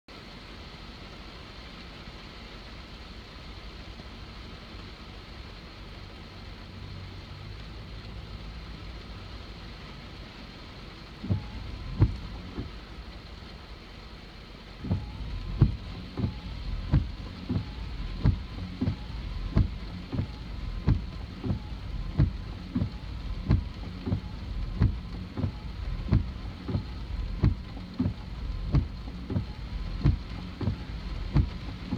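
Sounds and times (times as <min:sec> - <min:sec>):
hard rain on a car: 0:00.1 - 0:31.9
faint engine hum: 0:03.9 - 0:31.9
windshield wipers thumping: 0:11.1 - 0:13.5, 0:14.6 - 0:31.9.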